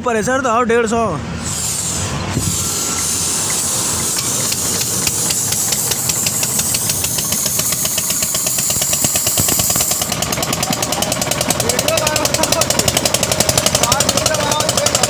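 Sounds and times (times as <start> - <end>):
hiss of air: 1.3 - 11.5
diesel engine knocking and revving: 3.0 - 15.0.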